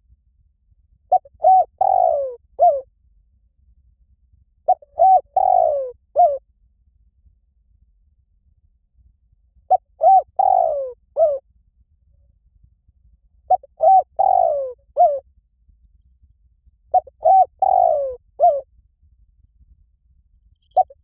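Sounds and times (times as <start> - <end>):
dove cooing: 1.1 - 2.8, 4.7 - 6.4, 9.7 - 11.4, 13.5 - 15.2, 16.9 - 18.6, 20.8 - 21.0.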